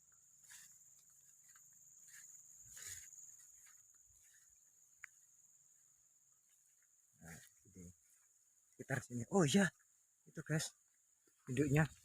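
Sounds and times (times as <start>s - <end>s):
high insect drone: 0.0s - 12.0s
soft rustle: 0.4s - 5.1s.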